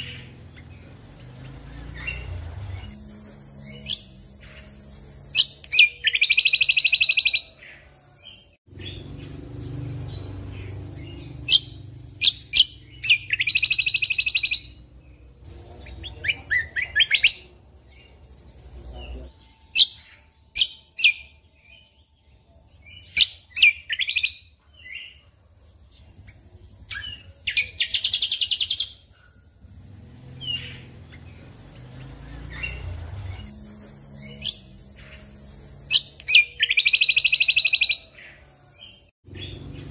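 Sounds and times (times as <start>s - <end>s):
songbird trilled bursts: 0.0s - 7.9s, 8.7s - 22.0s, 30.2s - 39.9s
bird chips and whistled notes: 0.0s - 14.9s, 15.9s - 25.3s, 30.4s - 39.9s.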